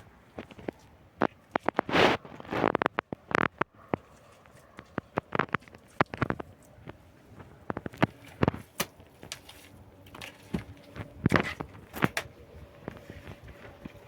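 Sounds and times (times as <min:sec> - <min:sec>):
faint steady hum: 0:04.0 - 0:14.0.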